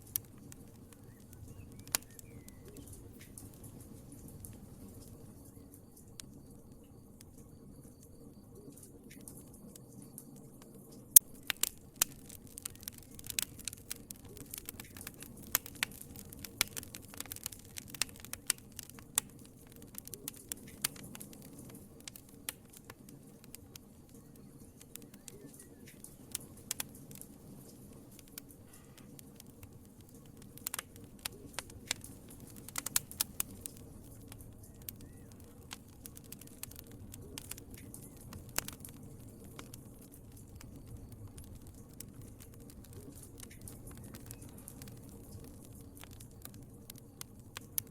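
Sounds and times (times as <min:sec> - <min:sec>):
wood fire crackling: 0:00.0 - 0:47.9.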